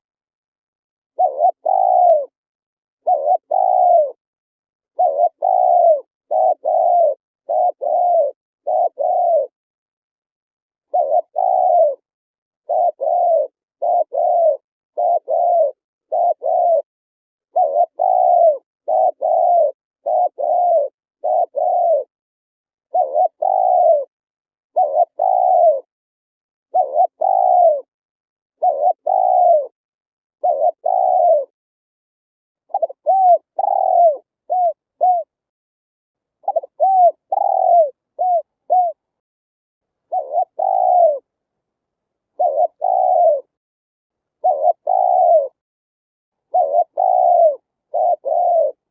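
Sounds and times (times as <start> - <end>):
dove cooing: 1.1 - 2.4, 3.0 - 4.2, 4.9 - 9.6, 10.9 - 16.9, 17.5 - 22.1, 22.9 - 24.1, 24.7 - 25.9, 26.7 - 27.9, 28.6 - 29.8, 30.4 - 31.6, 32.6 - 35.4, 36.4 - 39.1, 40.1 - 41.3, 42.3 - 43.6, 44.4 - 45.6, 46.4 - 48.9.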